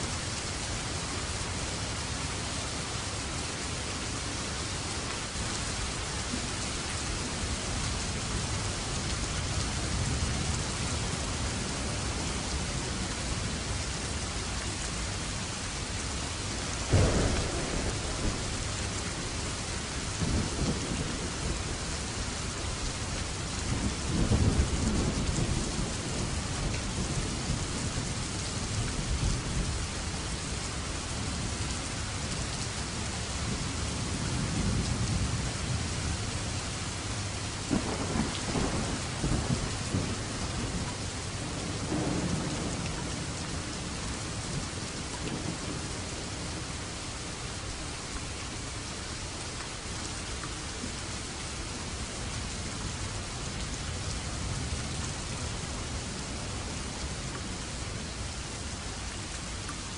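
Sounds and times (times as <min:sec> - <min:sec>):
heavy rain falling: 0:00.0 - 0:59.9
thunderclap: 0:16.9 - 0:19.5, 0:37.7 - 0:43.3
rolling thunder: 0:16.9 - 0:27.8, 0:37.7 - 0:44.7.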